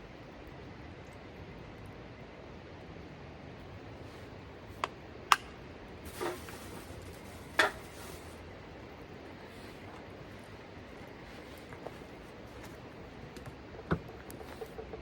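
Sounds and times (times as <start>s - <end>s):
soft scrape: 6.1s - 8.5s.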